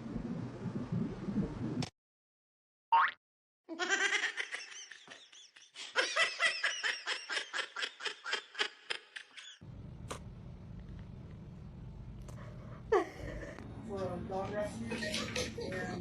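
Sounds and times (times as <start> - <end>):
person laughing: 12.9 - 13.6.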